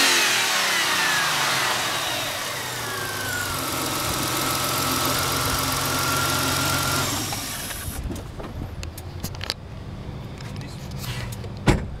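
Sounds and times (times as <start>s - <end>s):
car engine idling: 0.4s - 8.0s.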